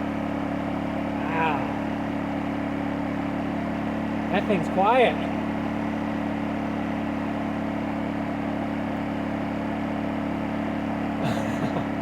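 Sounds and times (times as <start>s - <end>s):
generator humming: 0.0s - 12.0s.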